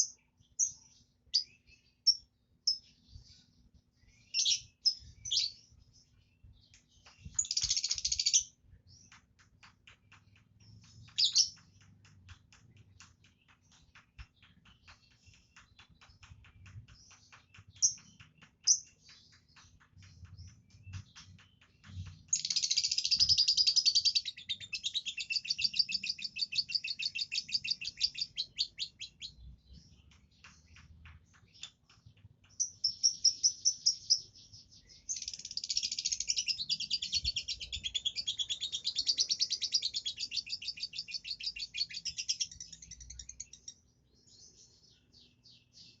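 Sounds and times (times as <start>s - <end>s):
lovebird chattering: 22.3s - 29.3s.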